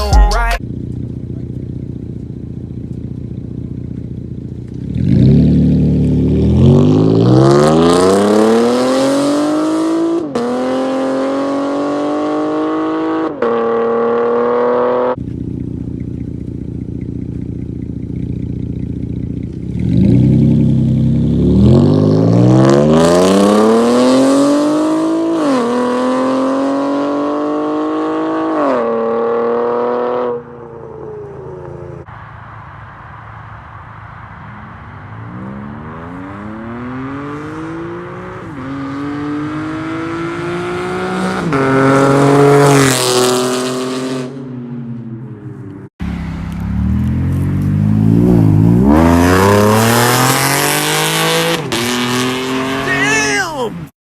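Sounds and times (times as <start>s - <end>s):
car engine with loud exhaust: 0.0s - 53.9s
car accelerating hard: 4.7s - 15.2s, 19.7s - 32.0s, 34.4s - 44.4s, 46.6s - 53.9s.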